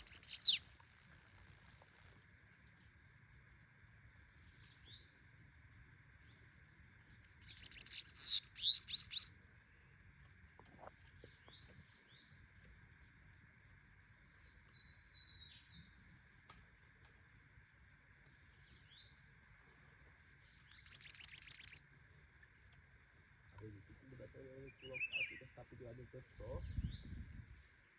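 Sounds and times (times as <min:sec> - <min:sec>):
bird twittering: 0:00.0 - 0:00.6, 0:07.3 - 0:09.3, 0:20.7 - 0:21.8
loud rapid bird trills: 0:00.0 - 0:00.6, 0:07.3 - 0:09.3, 0:20.8 - 0:21.8.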